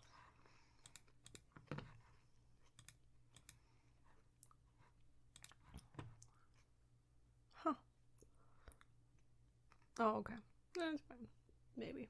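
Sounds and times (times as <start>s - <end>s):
computer mouse clicks: 0.8s - 1.9s, 2.6s - 3.6s, 5.3s - 6.3s.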